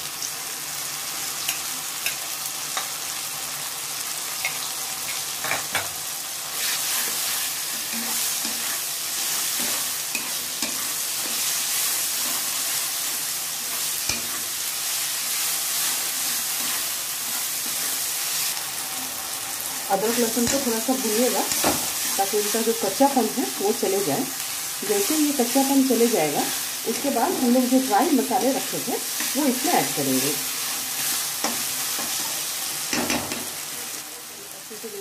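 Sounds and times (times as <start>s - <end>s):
food sizzling in hot oil: 0.0s - 35.0s
spatula scraping a pan: 6.5s - 18.6s.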